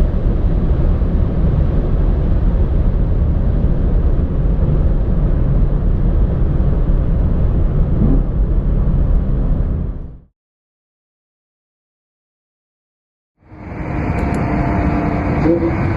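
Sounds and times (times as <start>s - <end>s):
sports car engine rumbling: 0.0s - 10.3s, 13.4s - 15.9s.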